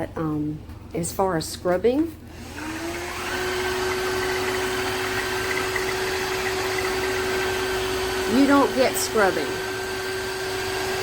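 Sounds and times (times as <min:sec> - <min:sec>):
floor washer motor whine: 0:02.3 - 0:11.0.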